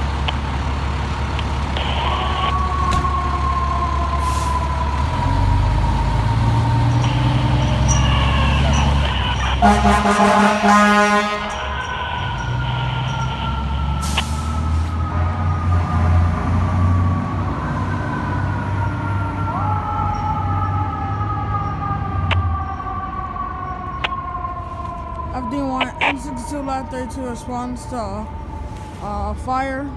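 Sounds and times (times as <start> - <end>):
fire engine siren winding: 0.0 - 29.1
diesel engine running: 0.0 - 29.9
horn blast: 7.0 - 13.2.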